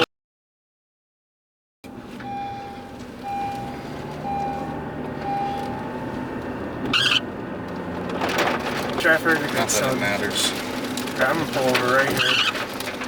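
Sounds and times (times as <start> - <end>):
vehicle rumble: 1.8 - 13.0
electronic beeps: 2.2 - 5.7.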